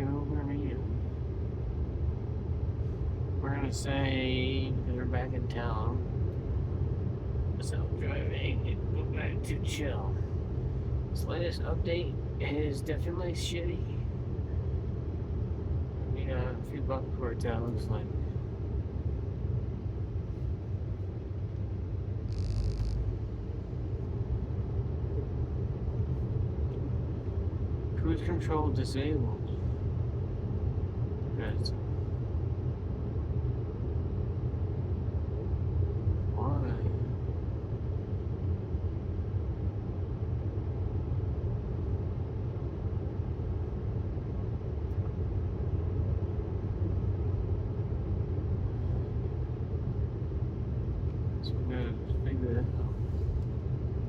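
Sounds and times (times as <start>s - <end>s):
road and tyre rumble in car: 0.0s - 54.0s
road and tyre rumble: 13.6s - 28.4s.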